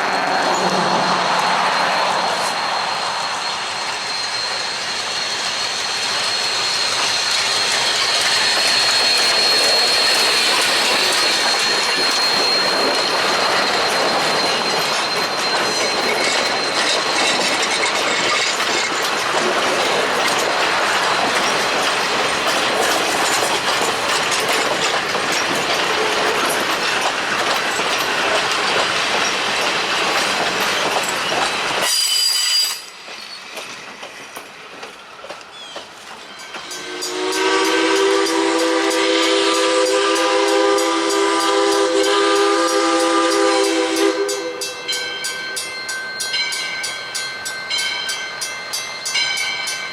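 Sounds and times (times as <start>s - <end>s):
high wheel squeal: 0.0s - 33.8s
train wheels clacking on rails: 0.0s - 49.9s.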